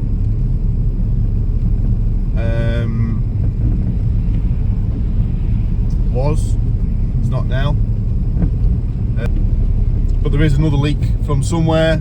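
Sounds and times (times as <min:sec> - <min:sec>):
engine and road noise drone: 0:00.0 - 0:12.0.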